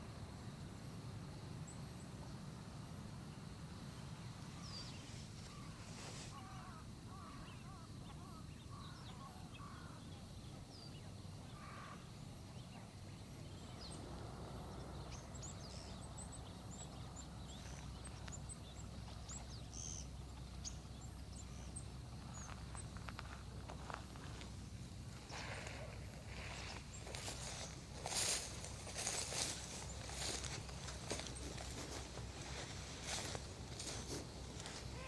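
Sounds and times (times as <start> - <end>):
low wavering bird calls: 34.6 - 35.0.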